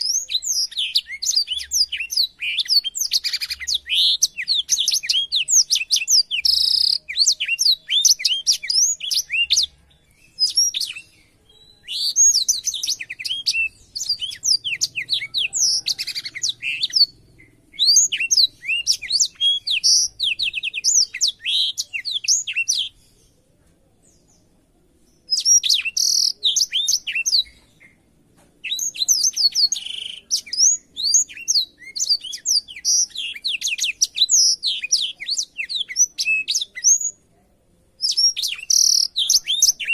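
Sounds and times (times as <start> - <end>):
bird singing twittering song: 0.0 - 37.3, 37.9 - 39.9.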